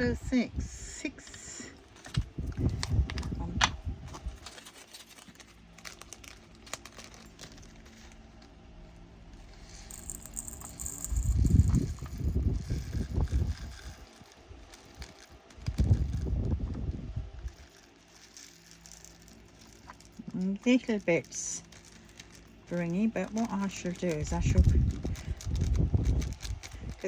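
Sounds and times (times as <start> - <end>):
plastic bags crinkling: 1.8 - 27.0
low bumping and rubbing: 9.9 - 14.3.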